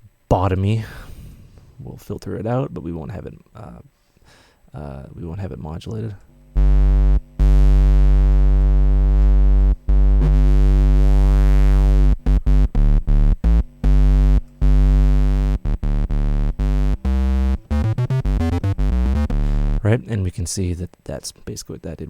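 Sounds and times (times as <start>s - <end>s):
distorted synthesizer bass notes: 6.4s - 20.0s.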